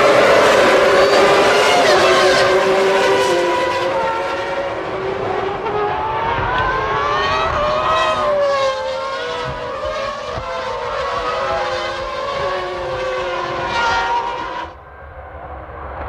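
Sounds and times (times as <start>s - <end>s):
racing cars high-revving engines: 0.0s - 14.8s.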